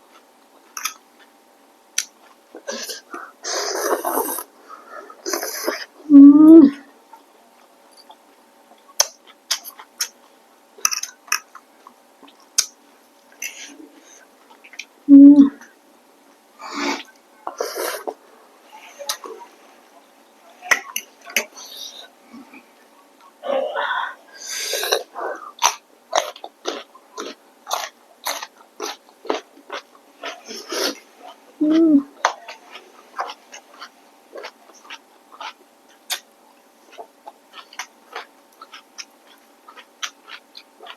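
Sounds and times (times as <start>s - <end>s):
chewing food with mouth smacks: 7.6s - 14.9s, 25.0s - 40.9s
mouth chewing clicks and lip smacks: 32.2s - 36.3s, 36.9s - 40.9s.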